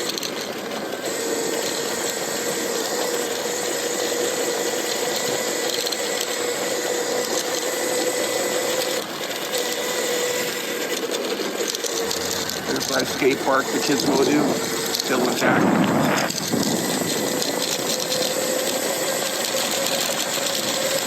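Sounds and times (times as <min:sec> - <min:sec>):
electric motor whining: 0:00.0 - 0:21.0
rushing noise: 0:12.0 - 0:18.3.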